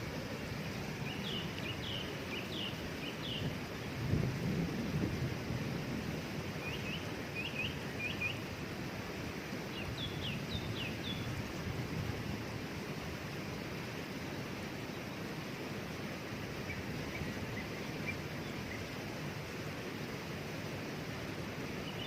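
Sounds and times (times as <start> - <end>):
waterfall rushing: 0.0 - 4.1, 5.0 - 22.0
small bird chirping: 1.0 - 3.5.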